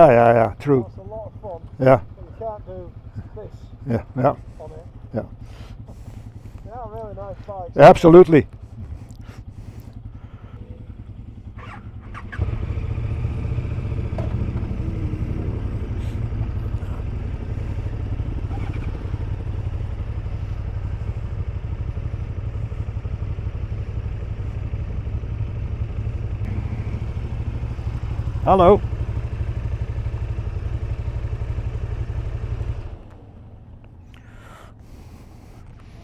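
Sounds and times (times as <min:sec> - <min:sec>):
motorcycle engine rumbling: 0:00.0 - 0:36.0.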